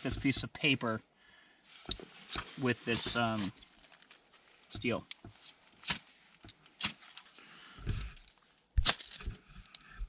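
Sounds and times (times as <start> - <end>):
fire steel scraping: 1.8 - 3.9.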